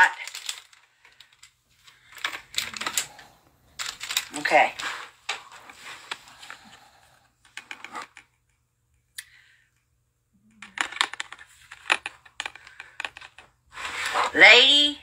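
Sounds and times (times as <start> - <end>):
package crinkling and clicking: 0.2 - 3.2, 3.8 - 4.4.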